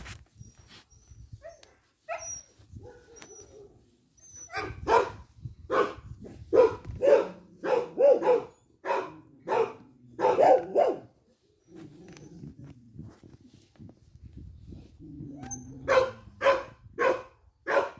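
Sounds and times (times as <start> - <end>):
dog barking: 4.5 - 11.1, 15.9 - 17.9.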